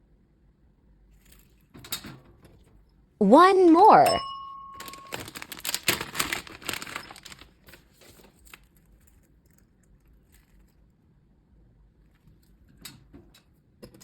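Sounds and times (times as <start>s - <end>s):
packaging crinkling and tearing: 4.8s - 10.9s.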